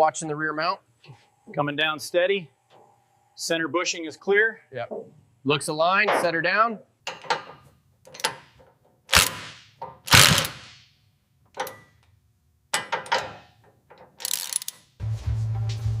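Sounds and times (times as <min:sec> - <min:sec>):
metallic clanks and knocks: 0:07.0 - 0:10.1, 0:11.5 - 0:12.0, 0:12.7 - 0:14.2.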